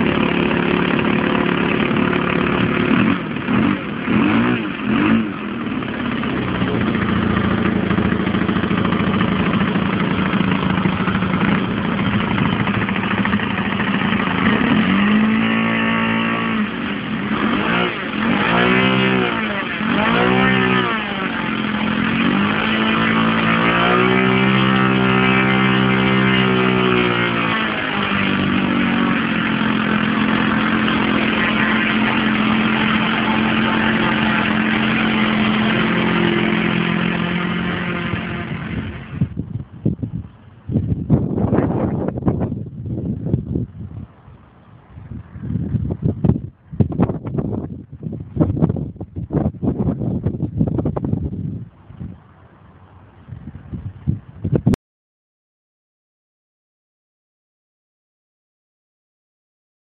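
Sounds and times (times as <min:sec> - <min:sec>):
model aircraft engine running: 0:00.0 - 0:39.4.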